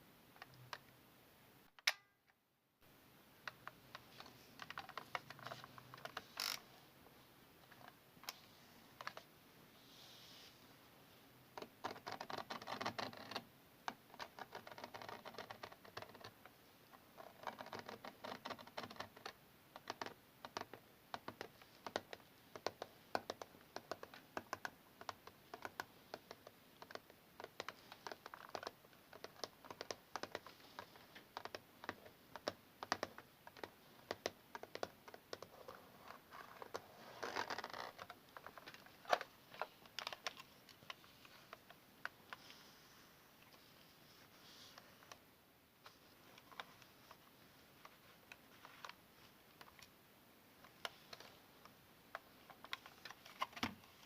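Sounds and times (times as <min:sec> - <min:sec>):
scratching on camera: 0:04.0 - 0:06.8, 0:11.6 - 0:49.9.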